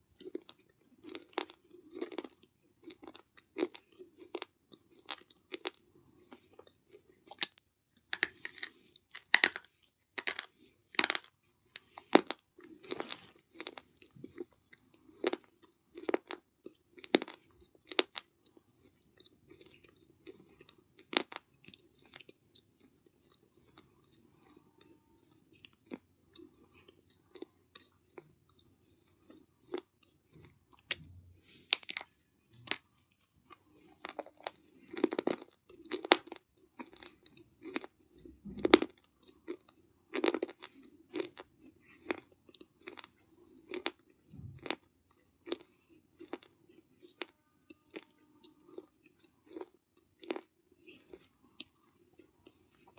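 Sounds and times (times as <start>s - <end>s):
person chewing hard clay: 0.0s - 52.9s.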